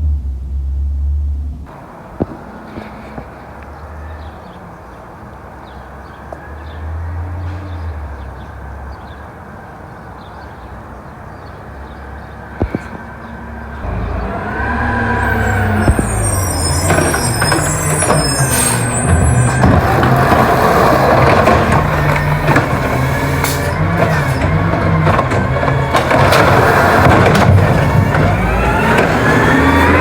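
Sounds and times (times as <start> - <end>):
garbage truck engine running: 13.6 - 30.0
high brake squeal: 13.9 - 30.0.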